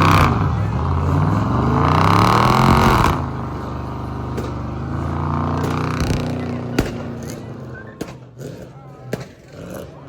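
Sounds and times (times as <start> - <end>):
car engine revving: 0.0 - 10.0
sharp crack: 4.2 - 8.5.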